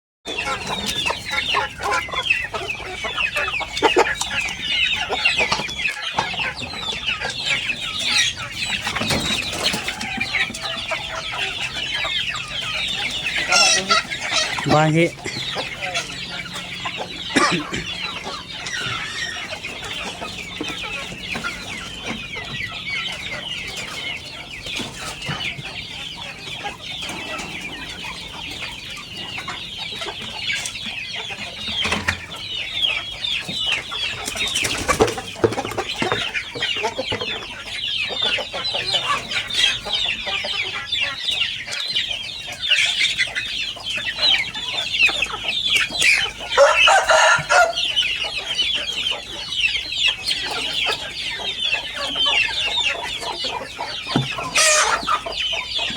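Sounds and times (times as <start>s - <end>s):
flock of chickens calling: 0.3s - 55.9s.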